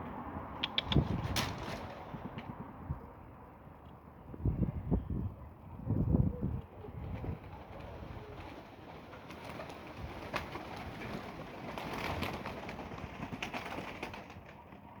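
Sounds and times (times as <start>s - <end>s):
sharp clicks: 0.6s - 1.6s
pigeons cooing: 6.3s - 10.0s.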